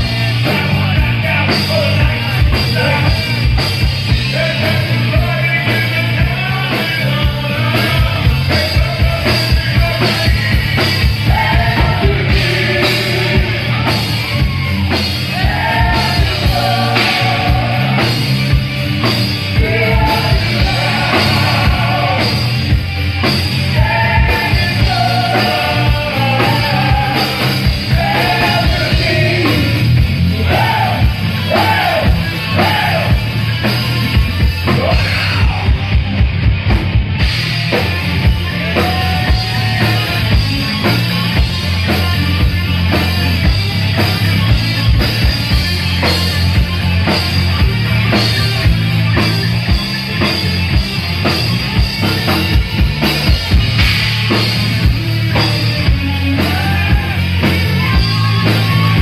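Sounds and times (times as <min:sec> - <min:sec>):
live rock band playing: 0:00.0 - 0:59.0
rapid bass drum: 0:00.0 - 0:59.0
person singing: 0:23.7 - 0:33.2.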